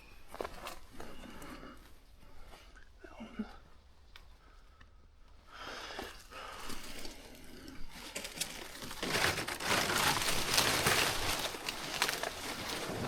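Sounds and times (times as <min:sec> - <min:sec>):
dry leaves crunching: 0:06.4 - 0:13.0.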